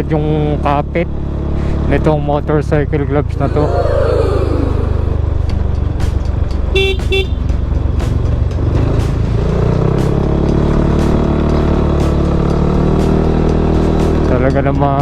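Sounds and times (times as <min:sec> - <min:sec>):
motorcycle engine: 0:00.0 - 0:15.0
motorcycle horn beeps: 0:06.7 - 0:07.6.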